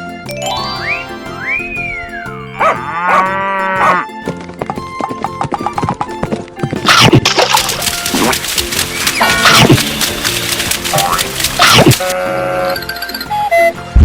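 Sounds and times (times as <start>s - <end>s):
background music: 0.0s - 14.0s
sliding whistle sound effects: 0.6s - 2.6s
cartoon cow mooing: 2.5s - 4.0s.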